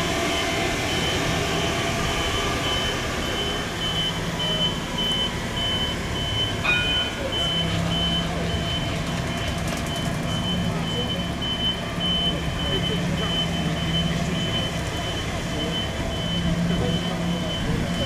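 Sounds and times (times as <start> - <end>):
high-pitched warning beeper: 2.1 - 18.0.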